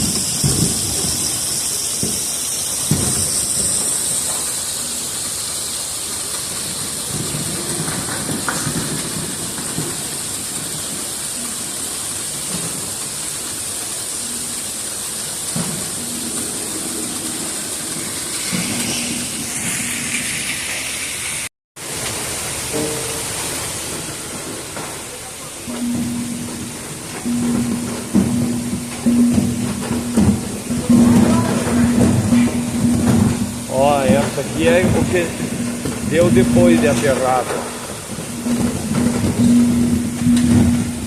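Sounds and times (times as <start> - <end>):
spraying water hiss: 0.0 - 41.0
low knocks: 25.7 - 37.3.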